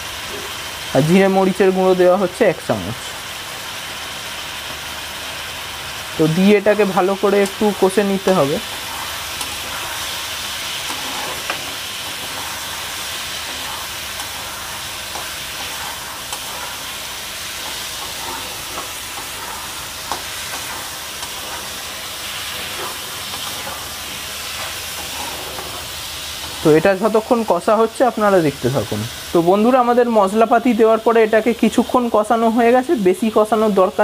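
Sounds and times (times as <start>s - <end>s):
vegetables sizzling in oil: 0.0s - 34.0s
wooden spatula scraping and tapping: 10.8s - 12.6s, 17.5s - 21.7s, 24.5s - 26.6s.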